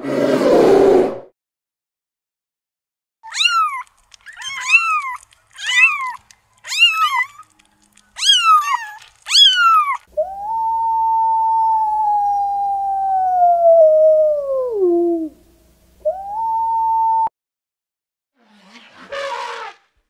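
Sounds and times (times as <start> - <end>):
kitten mewing: 3.3 - 13.2
wolf howling: 3.3 - 15.4.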